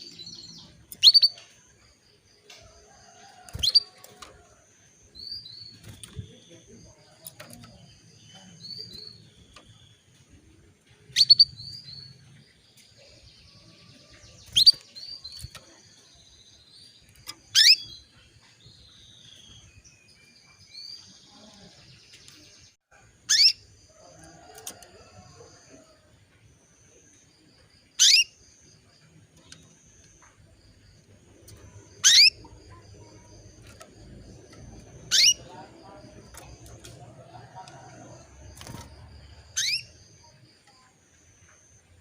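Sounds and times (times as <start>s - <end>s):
canary sharp chirps: 0.0s - 1.4s, 11.1s - 11.8s, 17.4s - 18.0s, 23.3s - 23.7s, 28.0s - 28.5s, 31.9s - 33.6s, 35.0s - 35.6s, 39.4s - 40.1s.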